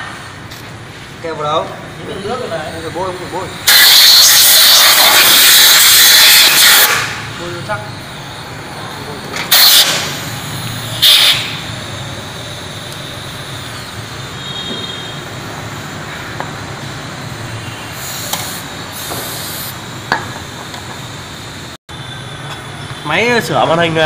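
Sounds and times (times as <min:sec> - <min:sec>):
low workshop hum: 0:00.0 - 0:24.0
compressed air hissing bursts: 0:03.6 - 0:07.4, 0:09.4 - 0:15.9, 0:17.6 - 0:20.7.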